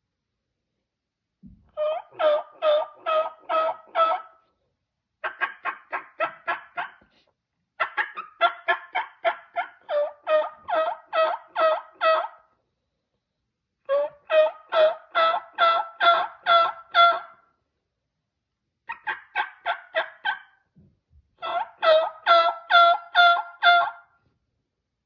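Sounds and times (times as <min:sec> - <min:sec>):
turkey yelping: 0:01.8 - 0:04.5, 0:05.2 - 0:07.1, 0:07.8 - 0:12.6, 0:13.9 - 0:17.5, 0:18.9 - 0:20.6, 0:21.4 - 0:24.1.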